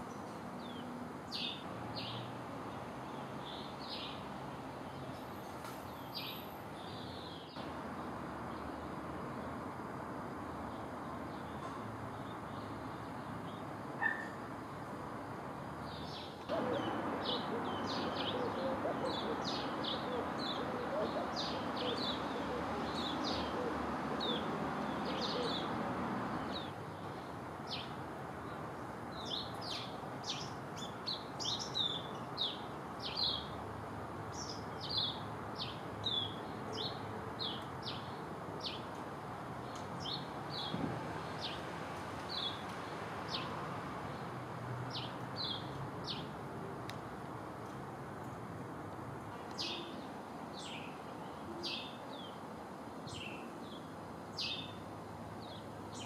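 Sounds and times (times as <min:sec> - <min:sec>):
small birds chirping: 0:15.8 - 0:25.8.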